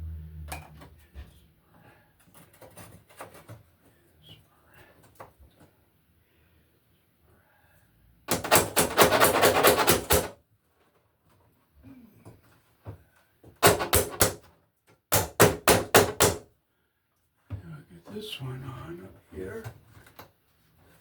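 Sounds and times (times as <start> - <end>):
loud rapid rattling: 8.3 - 10.3.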